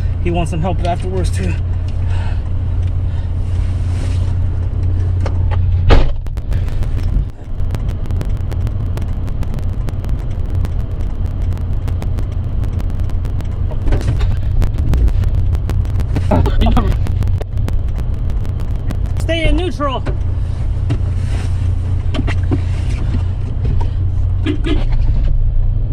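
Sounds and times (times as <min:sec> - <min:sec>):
vehicle engine rumbling: 0:01.7 - 0:25.9
irregular crackling: 0:06.1 - 0:23.2.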